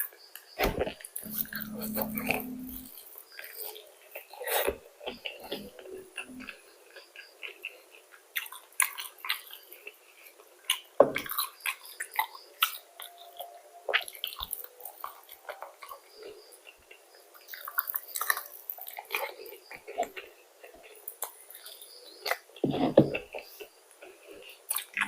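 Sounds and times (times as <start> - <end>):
chewing and crunching food: 0.0 - 25.0
loud thump: 0.6 - 1.0.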